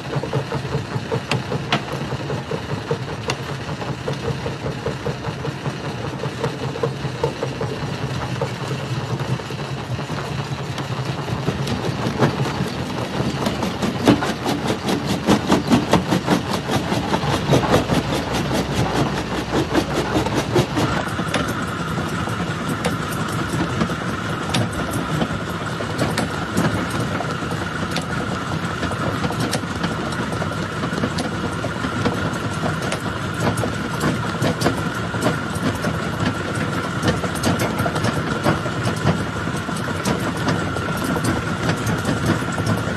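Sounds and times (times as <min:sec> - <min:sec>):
machine rumble: 0:00.0 - 0:42.9
steady high whine: 0:05.9 - 0:35.2.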